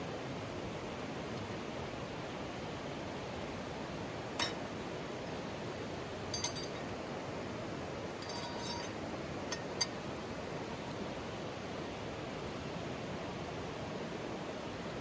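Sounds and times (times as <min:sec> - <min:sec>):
metal cookware clinking: 0:04.4 - 0:04.7, 0:06.3 - 0:06.9, 0:08.2 - 0:10.0.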